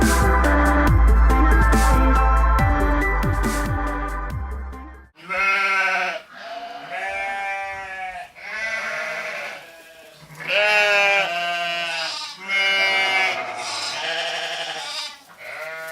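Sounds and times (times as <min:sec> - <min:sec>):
animals bleating: 0:05.2 - 0:15.9.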